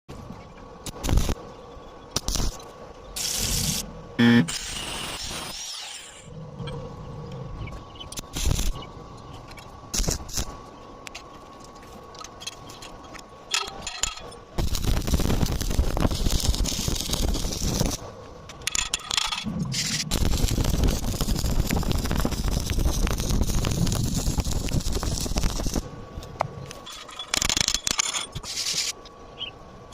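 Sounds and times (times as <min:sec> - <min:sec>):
welding arc crackling: 0:00.8 - 0:01.4, 0:02.2 - 0:02.6, 0:03.2 - 0:06.3, 0:08.1 - 0:08.9, 0:09.9 - 0:10.7, 0:14.6 - 0:25.9
metal knocks and clinks: 0:12.3 - 0:14.4.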